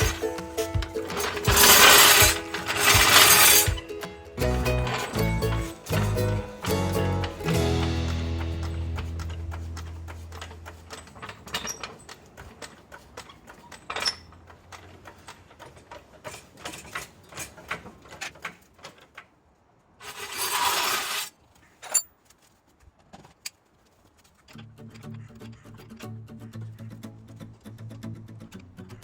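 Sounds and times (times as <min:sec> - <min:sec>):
metallic clicks of small parts: 0:09.2 - 0:19.2.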